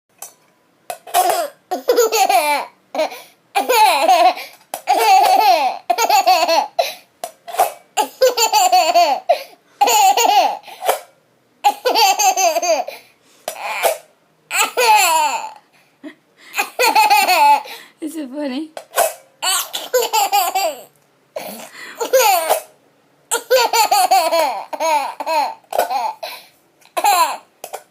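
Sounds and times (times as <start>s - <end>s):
baby laughing: 1.2s - 7.0s, 8.0s - 10.8s, 11.7s - 13.0s, 14.5s - 17.8s, 19.4s - 22.7s, 23.3s - 27.4s.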